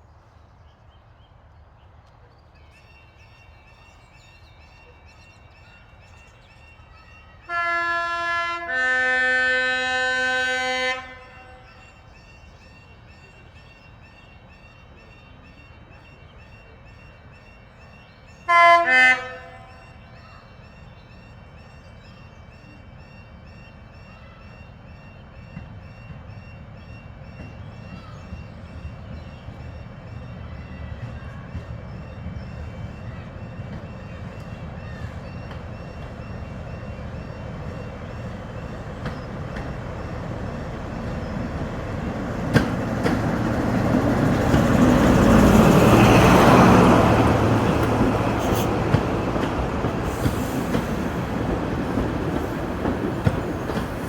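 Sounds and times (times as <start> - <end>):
two-tone train horn: 7.4 - 12.1, 18.4 - 20.6, 23.0 - 54.0.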